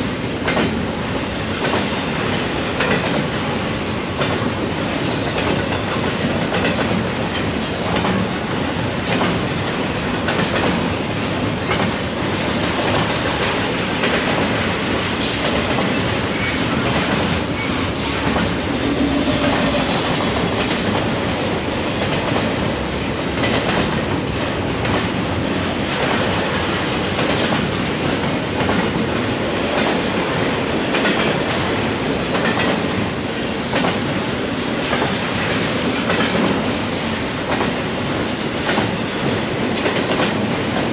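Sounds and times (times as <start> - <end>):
train wheels clattering over rail joints: 1.6 - 40.9.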